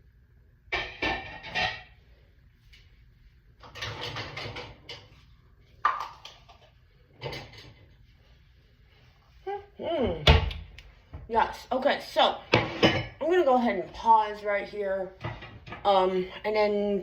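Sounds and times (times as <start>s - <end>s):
dishes and glassware clinking: 0.7s - 2.0s, 12.5s - 13.2s.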